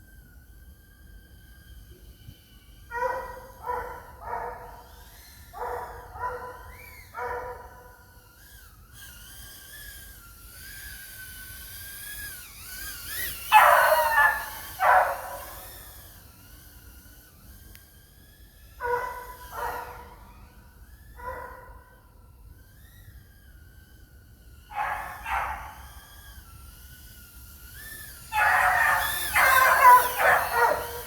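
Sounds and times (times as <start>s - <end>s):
dog barking: 2.9s - 4.8s, 5.6s - 8.0s, 13.5s - 15.6s, 18.8s - 20.1s, 21.2s - 21.8s, 24.7s - 25.8s, 28.3s - 31.0s.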